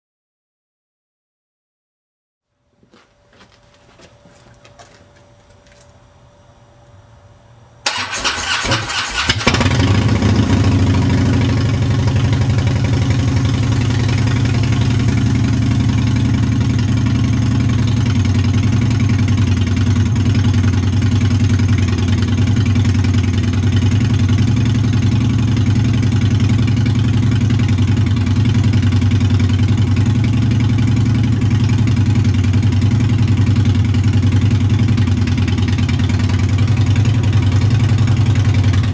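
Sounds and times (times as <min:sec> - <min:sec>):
engine starter cranking: 0:07.8 - 0:09.8
motorcycle engine idling loudly: 0:09.1 - 0:38.9.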